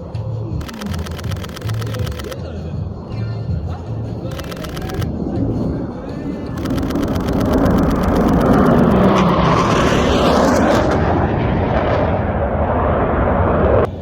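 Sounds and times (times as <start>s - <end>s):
camera shutter clicks: 0.6s - 2.4s, 4.3s - 5.1s, 6.6s - 9.2s
jet engine flying past: 0.6s - 14.0s.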